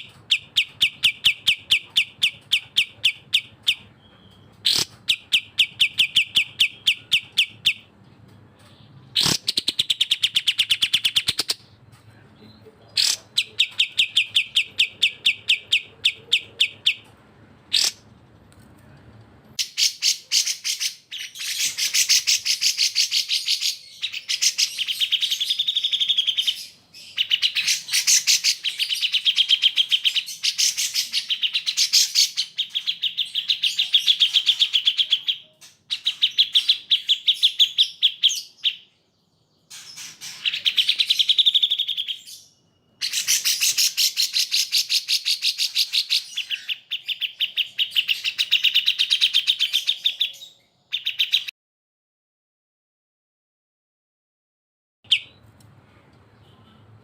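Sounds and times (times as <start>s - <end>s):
bulbuls singing fast trills: 39.7s - 51.5s.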